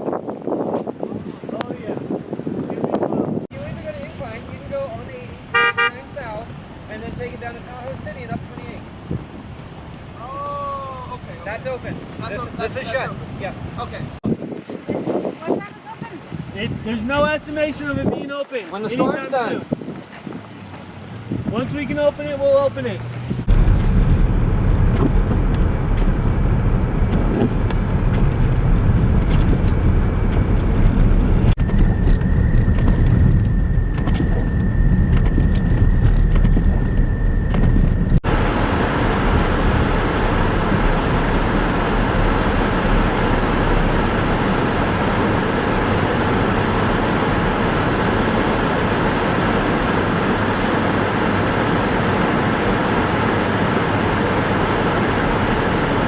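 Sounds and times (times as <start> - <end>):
deep engine rumble: 20.8 - 56.0
dense roar with high whine: 21.0 - 56.0.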